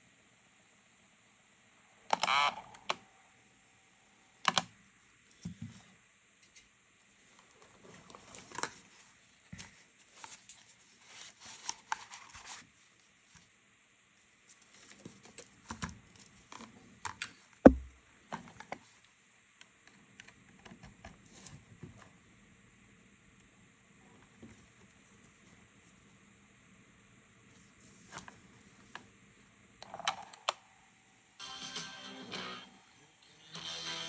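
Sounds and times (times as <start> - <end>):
sharp knock: 17.7 - 18.0.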